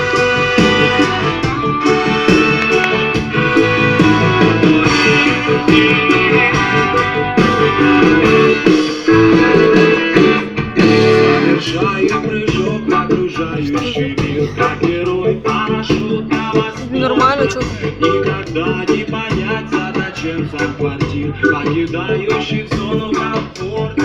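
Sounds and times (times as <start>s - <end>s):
guitar-led band music: 0.0s - 24.0s.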